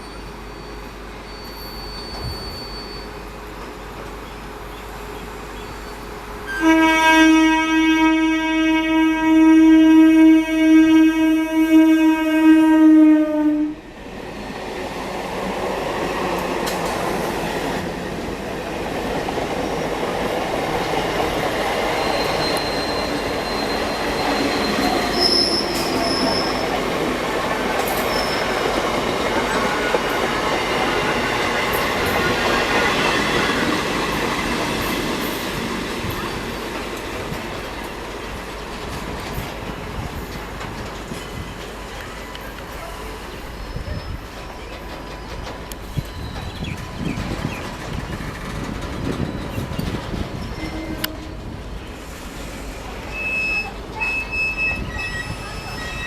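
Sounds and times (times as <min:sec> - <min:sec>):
high wheel squeals: 0:00.0 - 0:03.5, 0:21.3 - 0:35.2, 0:52.0 - 0:56.0
train wheels on rails: 0:00.0 - 0:56.0
train horn blast: 0:06.5 - 0:13.9, 0:50.6 - 0:51.6.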